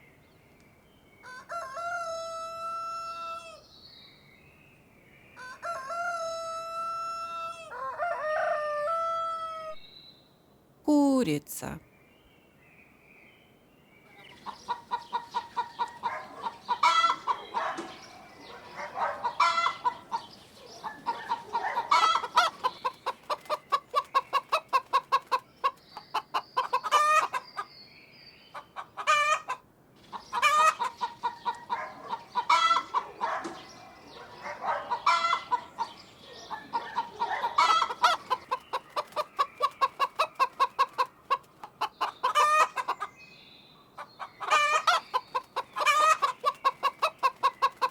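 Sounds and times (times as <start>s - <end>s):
hen clucking and cackling: 14.5s - 17.7s, 20.9s - 27.7s, 28.6s - 33.2s, 34.9s - 43.1s, 44.0s - 47.9s.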